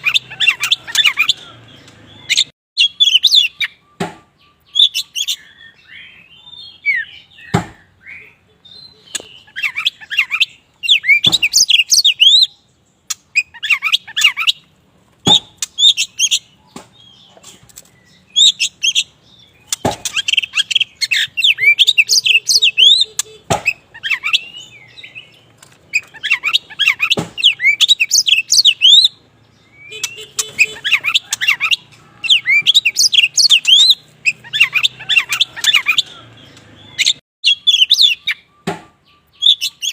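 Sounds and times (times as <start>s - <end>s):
bird singing whistled phrases: 2.2s - 12.6s, 20.1s - 25.3s, 26.0s - 36.2s, 36.9s - 39.9s.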